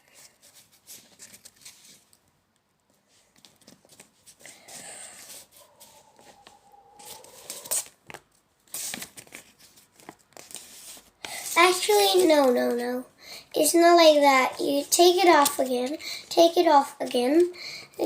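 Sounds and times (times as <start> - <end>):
paper rustling and crinkling: 0.0 - 2.2, 3.0 - 13.0.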